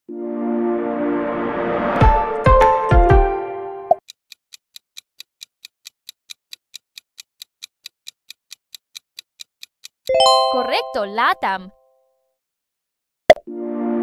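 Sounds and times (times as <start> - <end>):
clock ticking: 4.0 - 11.5
held musical note: 10.1 - 11.4.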